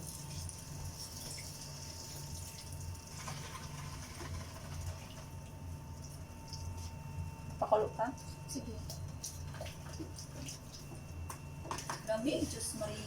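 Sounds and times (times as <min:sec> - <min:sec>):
water pouring into a pot: 0:00.0 - 0:05.4.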